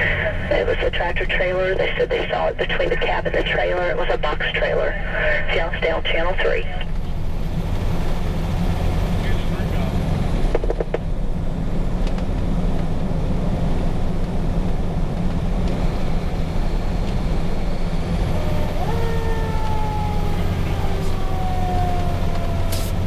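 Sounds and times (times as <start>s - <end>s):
fire engine diesel droning: 0.0s - 23.0s
siren winding up and down: 18.2s - 23.0s.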